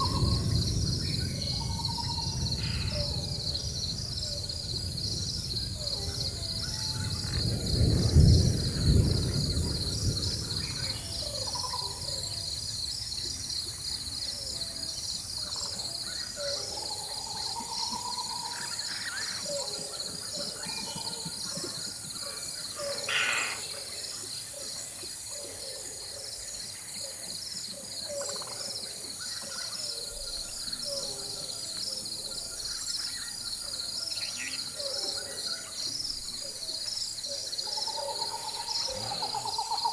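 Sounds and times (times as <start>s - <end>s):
distant thunder rumble: 0.0s - 14.6s
insects chorus: 0.0s - 39.9s
bird calls: 14.3s - 24.7s.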